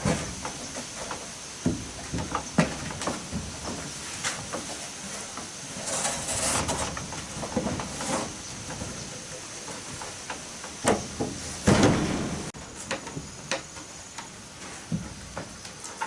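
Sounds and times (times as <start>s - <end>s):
knocks and bumps: 0.0s - 4.8s, 5.9s - 13.6s
heavy thuds: 10.9s - 12.6s.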